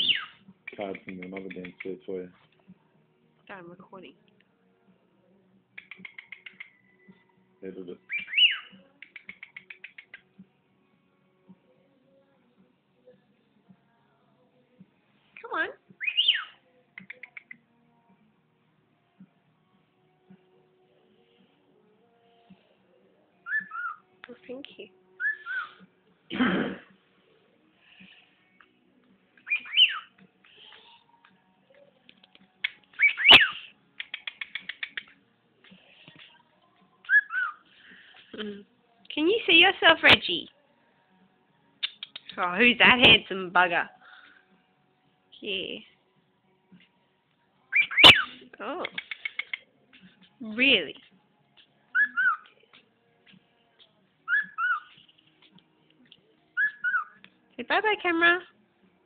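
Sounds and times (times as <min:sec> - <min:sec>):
pet bird whistling: 0:00.0 - 0:01.9, 0:05.8 - 0:06.8, 0:08.1 - 0:10.2, 0:16.0 - 0:17.6, 0:23.4 - 0:24.0, 0:25.2 - 0:25.8, 0:29.4 - 0:30.1, 0:32.6 - 0:35.1, 0:37.1 - 0:37.6, 0:47.7 - 0:49.6, 0:51.9 - 0:52.5, 0:54.3 - 0:55.0, 0:56.6 - 0:57.2
bird chirps: 0:00.0 - 0:02.0, 0:05.8 - 0:06.8, 0:08.1 - 0:10.2, 0:16.0 - 0:17.6, 0:29.4 - 0:31.0, 0:33.0 - 0:35.2, 0:47.7 - 0:49.6, 0:51.9 - 0:52.5, 0:54.3 - 0:55.1, 0:56.6 - 0:57.2
bird whistling two-note phrase: 0:08.1 - 0:08.7.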